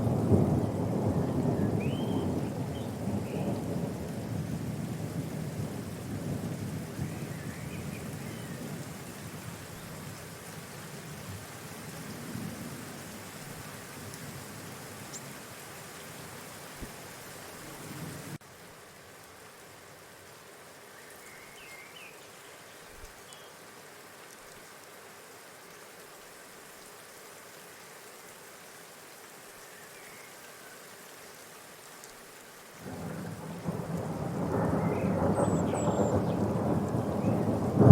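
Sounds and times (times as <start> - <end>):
rain-like hiss: 0.0 - 37.9
faint bird chirps: 34.6 - 37.5.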